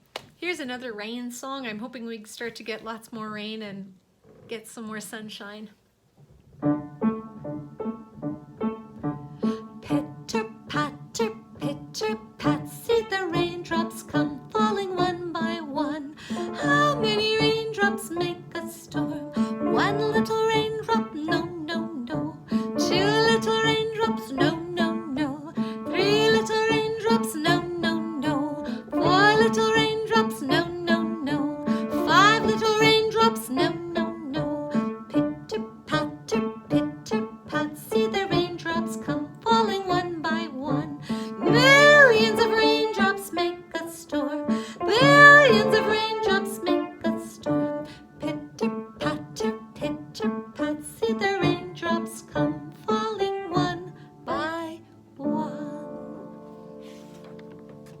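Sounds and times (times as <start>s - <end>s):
instrumental accompaniment: 6.6s - 11.6s
woman singing: 9.4s - 56.4s.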